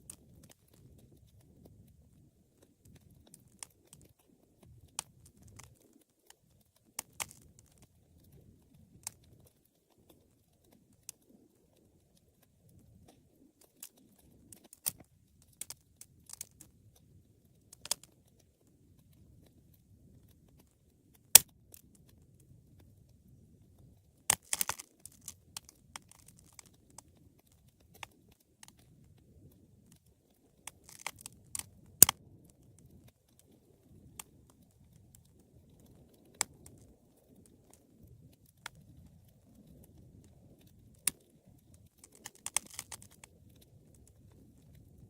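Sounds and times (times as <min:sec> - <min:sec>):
low rumble of burning: 0:00.0 - 0:45.0
wood fire crackling and popping: 0:00.0 - 0:45.0.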